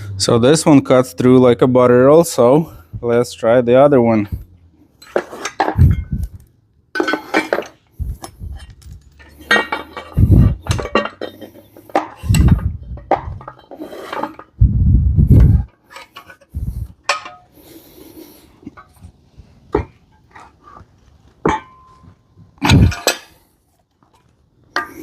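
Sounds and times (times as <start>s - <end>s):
metal plates clattering: 5.0s - 14.6s, 15.3s - 17.6s, 21.4s - 23.5s, 24.7s - 25.0s.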